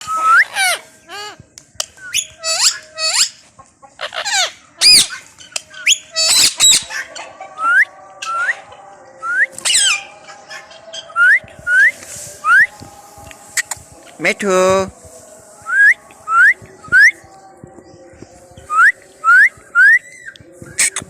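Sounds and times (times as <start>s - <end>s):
parakeets squawking: 4.0s - 7.4s, 9.6s - 11.2s.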